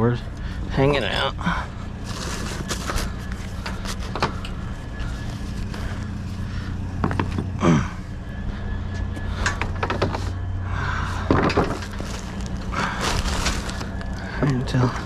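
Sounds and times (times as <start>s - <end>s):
vehicle engine idling: 0.0s - 15.0s
junk clattering in dumpster: 11.1s - 14.9s.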